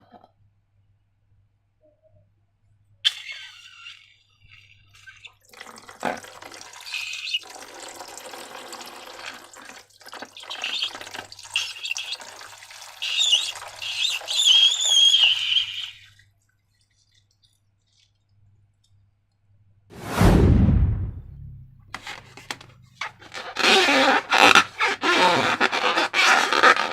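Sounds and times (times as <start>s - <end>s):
wavering high squeak: 13.1s - 16.0s
slime being poured and handled: 16.5s - 18.9s
loud low whoosh: 19.9s - 22.0s.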